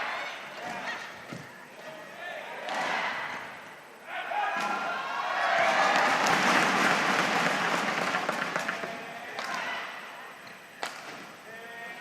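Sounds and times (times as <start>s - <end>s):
crowd cheering and clapping: 5.2s - 9.6s.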